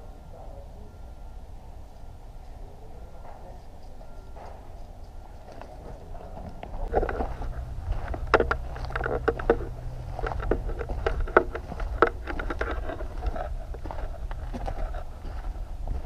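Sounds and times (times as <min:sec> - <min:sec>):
knocks and clinks: 0:04.0 - 0:14.9
low rumble: 0:04.0 - 0:16.0.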